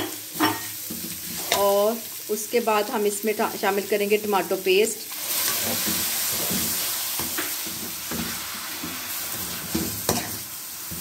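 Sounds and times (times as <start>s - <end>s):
spatula scraping and tapping pan: 0.0s - 1.7s, 5.4s - 11.0s
chicken sizzling in a pan: 0.0s - 11.0s.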